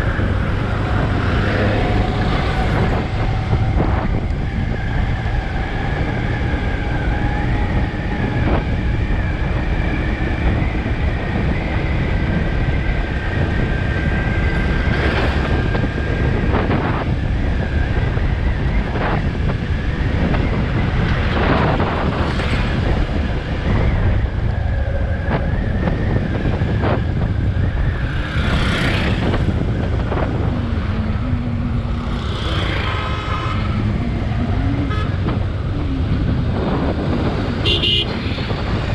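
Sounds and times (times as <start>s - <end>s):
engine and tyre rumble: 0.0s - 38.9s
vehicles rushing past: 0.0s - 38.9s
wind on microphone: 0.0s - 38.9s
horn-like tone: 34.8s - 35.3s, 37.6s - 38.1s.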